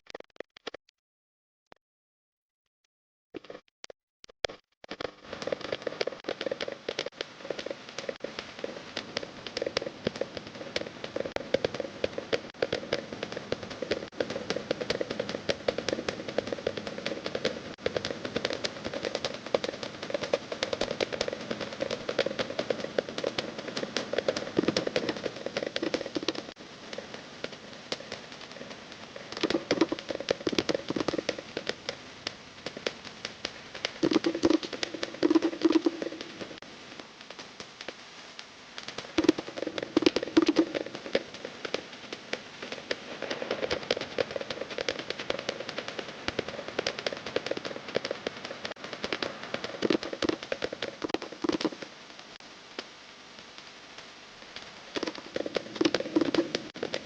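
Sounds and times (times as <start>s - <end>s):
rapid drum strikes: 5.4s - 36.4s.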